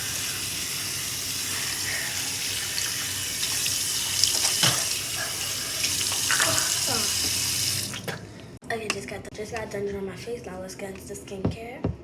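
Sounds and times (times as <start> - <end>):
tap water running into sink: 0.0 - 8.2
water splashes: 2.0 - 8.2.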